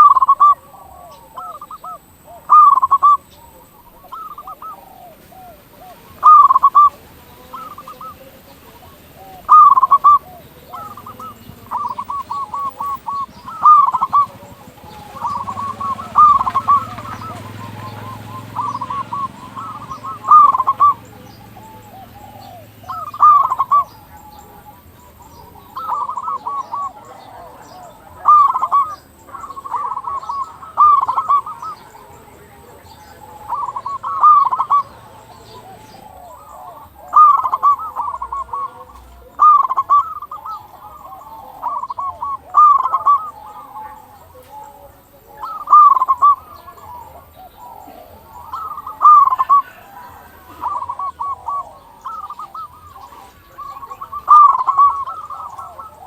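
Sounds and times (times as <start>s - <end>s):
dove cooing: 0.0s - 56.0s
other birds calling: 0.0s - 56.0s.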